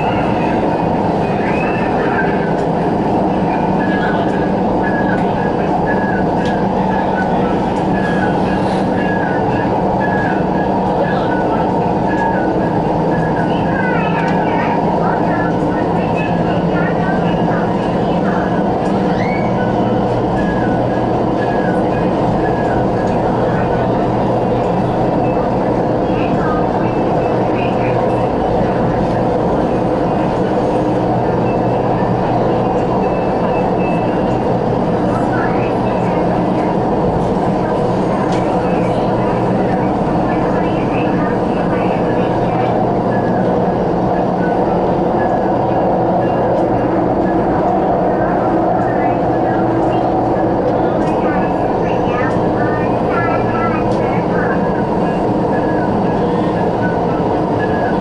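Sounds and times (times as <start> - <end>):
train wheels and motors rumbling: 0.0 - 58.0.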